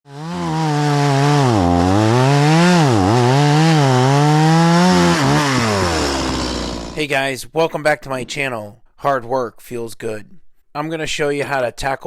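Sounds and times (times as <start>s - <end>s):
chainsaw running at high revs: 0.1s - 7.0s.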